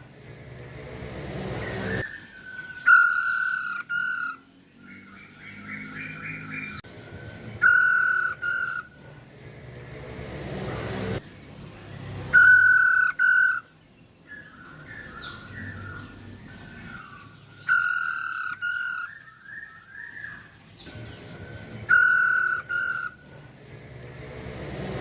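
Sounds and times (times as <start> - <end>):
harsh bird calls: 1.6 - 9.0, 12.2 - 23.3
soft chirping twitters: 2.2 - 9.0, 12.4 - 15.8, 17.4 - 23.2.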